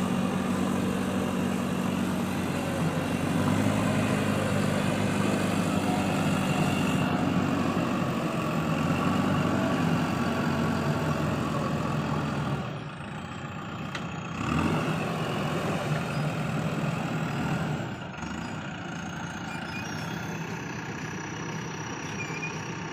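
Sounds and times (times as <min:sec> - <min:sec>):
heavy diesel engine running: 0:00.0 - 0:22.9.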